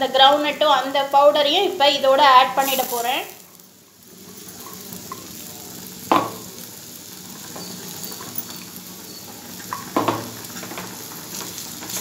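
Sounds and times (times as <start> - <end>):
vegetables sizzling in oil: 0.0 - 12.0
metal spatula knocking on pan: 6.1 - 6.4, 9.7 - 10.3.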